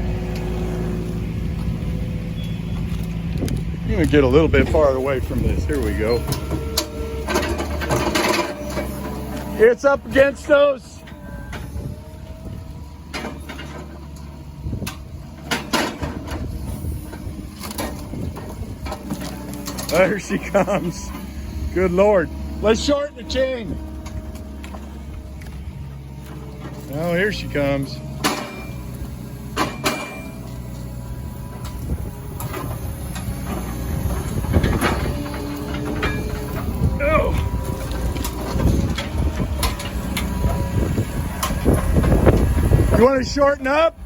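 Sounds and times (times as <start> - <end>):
machine engine running: 0.0 - 44.0
chain and wood clanking: 2.4 - 11.7, 13.1 - 43.0
sharp metal clanks: 29.5 - 30.4.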